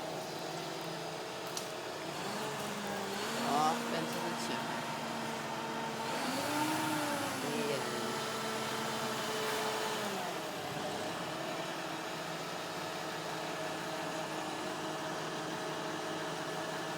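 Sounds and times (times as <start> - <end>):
motor engine running: 2.1 - 9.5.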